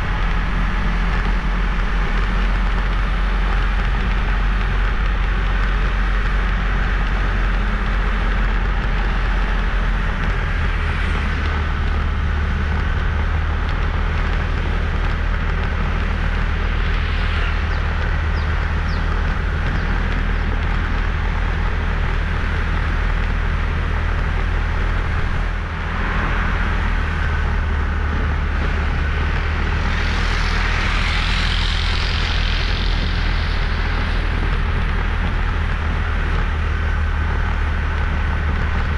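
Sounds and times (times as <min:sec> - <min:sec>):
motorbike engine rumble: 0:00.0 - 0:38.9
wind noise on microphone: 0:00.0 - 0:38.9
loud hiss: 0:29.2 - 0:35.2.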